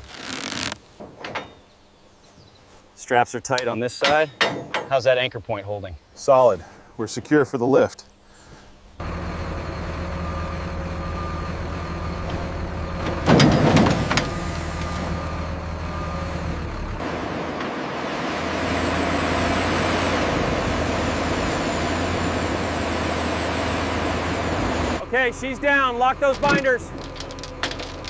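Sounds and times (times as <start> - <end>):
heavy vehicle engine running: 9.0 - 28.0.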